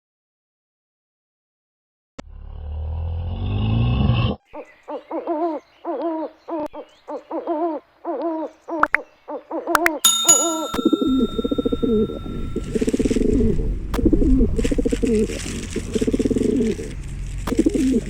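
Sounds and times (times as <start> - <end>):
steady high tone: 10.1 - 13.1.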